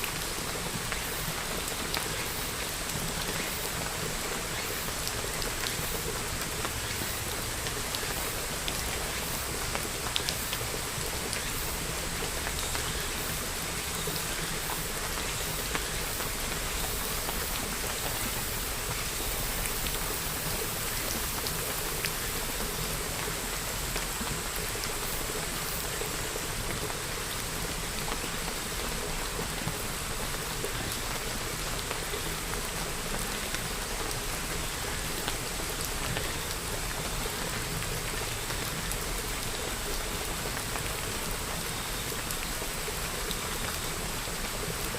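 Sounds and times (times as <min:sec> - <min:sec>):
steady rain pattering: 0:00.0 - 0:44.9.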